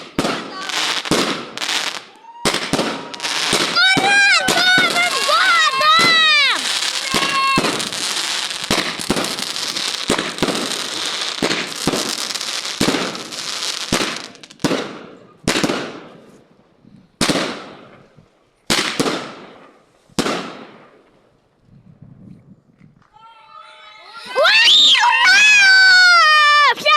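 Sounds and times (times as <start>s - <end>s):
loud firework bangs: 0.0s - 16.3s, 17.2s - 18.1s, 18.7s - 21.0s
fireworks crackling bangs: 0.0s - 16.4s, 17.2s - 21.1s.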